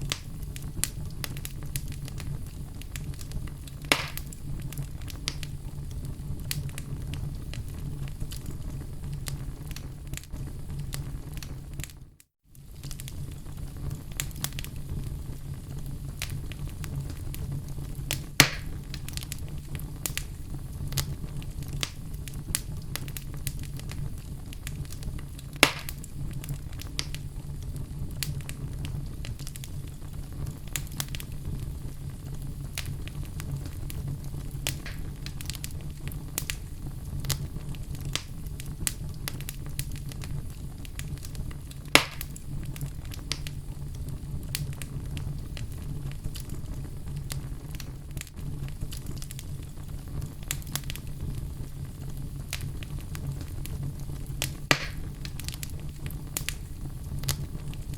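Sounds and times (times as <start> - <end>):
log fire crackling: 0.0 - 57.9
sharp loud fire pops: 3.8 - 4.4, 18.4 - 18.8, 25.6 - 26.0, 34.7 - 35.4, 41.9 - 42.4, 54.6 - 55.1.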